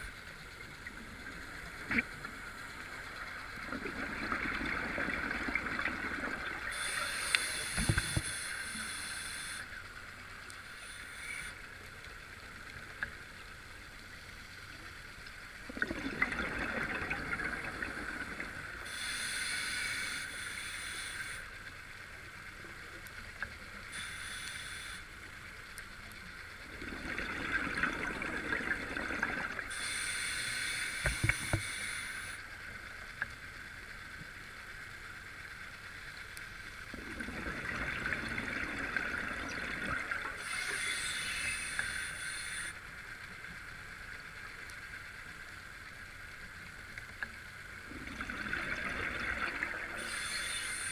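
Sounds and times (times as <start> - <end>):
exhaled bubbles gurgling: 3.4 - 7.0, 15.7 - 18.9, 26.6 - 29.8, 36.9 - 42.6, 47.8 - 50.9
scuba regulator hissing: 50.0 - 50.9.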